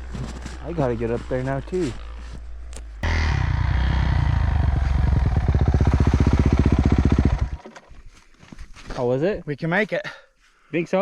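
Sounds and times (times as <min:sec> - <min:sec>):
dirt bike engine revving: 0:03.0 - 0:07.7.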